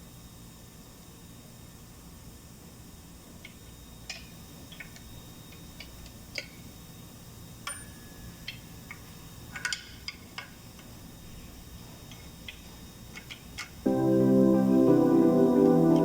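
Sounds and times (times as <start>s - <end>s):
low steady hum: 13.9s - 16.0s.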